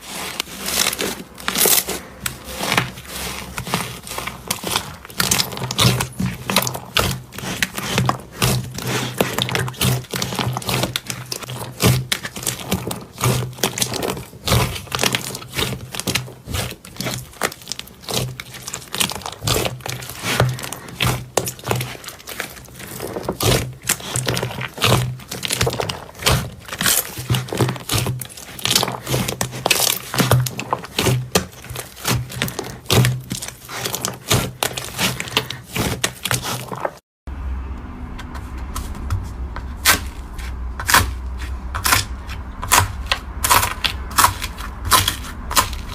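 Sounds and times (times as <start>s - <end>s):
slime popping and crackling: 0.1s - 37.0s
steady low hum: 37.3s - 45.9s.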